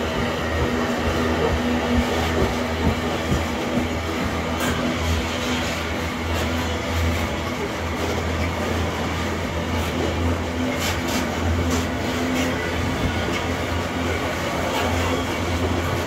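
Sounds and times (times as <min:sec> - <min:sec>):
train wagons rumbling on rails: 0:00.0 - 0:16.0.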